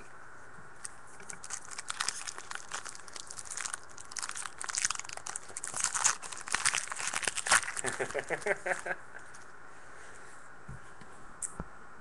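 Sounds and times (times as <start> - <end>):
foil wrapper crinkling and tearing: 1.2 - 9.4.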